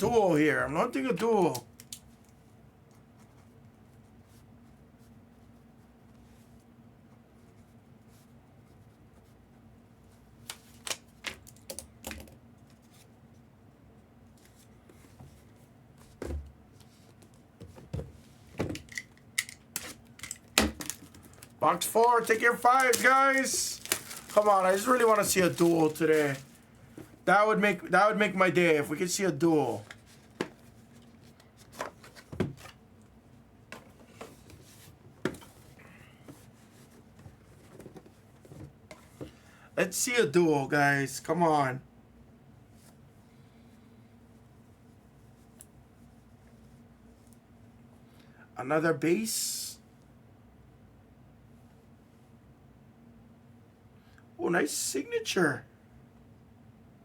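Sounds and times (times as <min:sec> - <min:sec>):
packaging rustling: 0:18.8 - 0:27.0
packaging clicks: 0:22.2 - 0:26.5.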